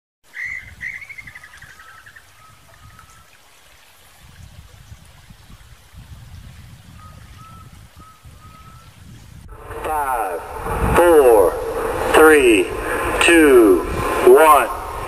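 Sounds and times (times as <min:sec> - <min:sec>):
songbird chirping and trilling: 0:00.3 - 0:03.5, 0:06.8 - 0:09.2
low rumble: 0:09.4 - 0:15.0.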